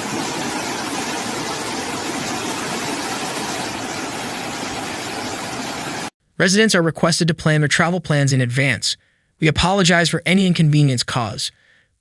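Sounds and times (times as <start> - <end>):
rushing floodwater: 0.0 - 6.1.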